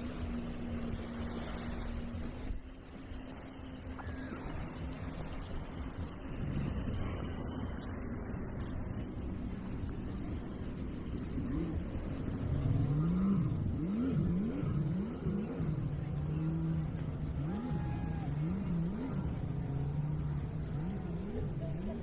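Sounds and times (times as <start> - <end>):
engine revving: 11.4 - 22.0.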